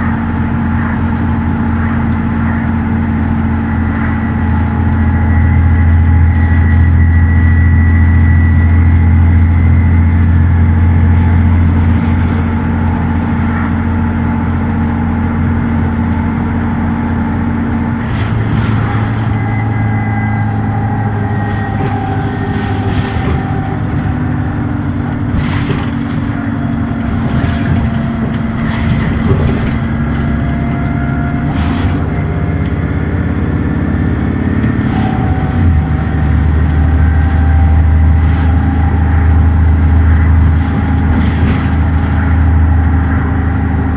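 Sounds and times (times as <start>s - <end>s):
bus diesel engine droning: 0.0s - 43.9s
knocks and rattles: 17.9s - 20.0s, 20.6s - 32.8s, 34.2s - 43.0s.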